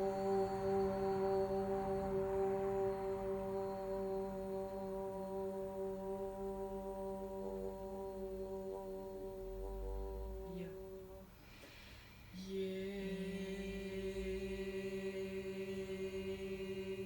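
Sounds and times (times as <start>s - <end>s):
breath: 11.3s - 12.4s.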